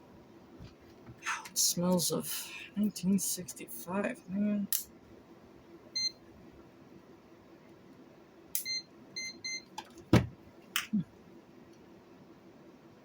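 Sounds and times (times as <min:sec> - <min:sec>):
multimeter beeps: 0:06.0 - 0:06.2, 0:08.6 - 0:09.7.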